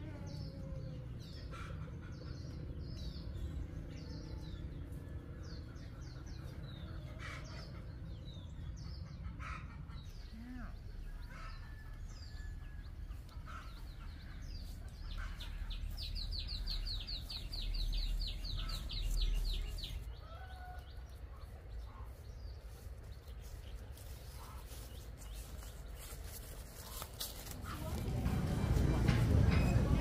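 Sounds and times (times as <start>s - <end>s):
birds chirping: 0.0s - 30.0s
low rumble: 20.8s - 30.0s.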